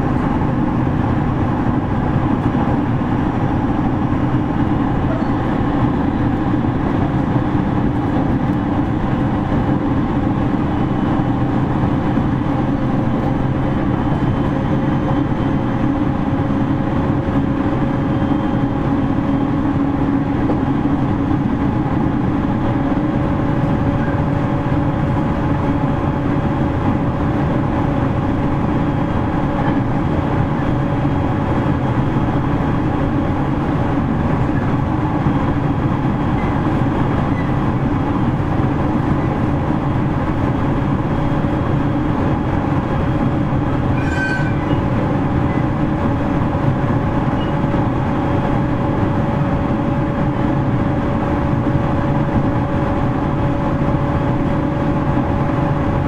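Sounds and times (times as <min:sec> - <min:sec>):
constant hum: 0:00.0 - 0:56.0
train wheels rumbling on rail: 0:00.0 - 0:56.0
high squeak: 0:43.9 - 0:44.9.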